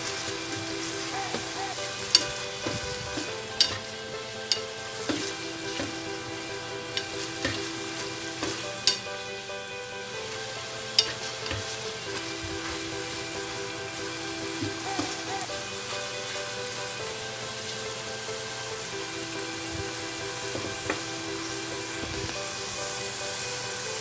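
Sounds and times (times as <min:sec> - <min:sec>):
food sizzling in oil: 0:00.0 - 0:24.0
spatula knocking on a pan: 0:00.6 - 0:09.0, 0:10.9 - 0:13.2, 0:19.8 - 0:21.1.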